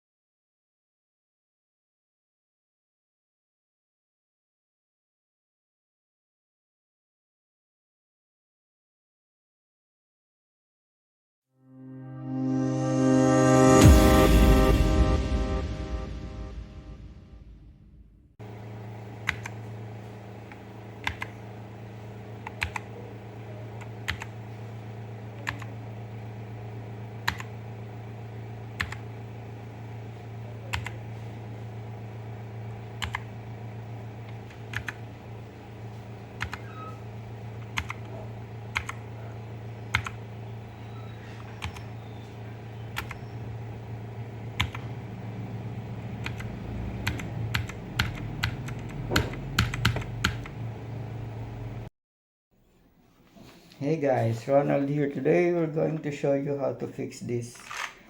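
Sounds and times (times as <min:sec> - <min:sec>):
steady low hum: 0:12.2 - 0:51.9
mechanical keyboard keys clicking: 0:22.4 - 0:22.9, 0:46.2 - 0:50.5.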